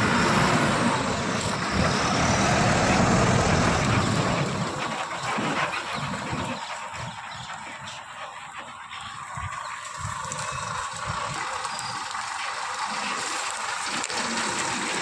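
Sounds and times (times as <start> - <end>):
heavy vehicle engine running: 0.0 - 9.6.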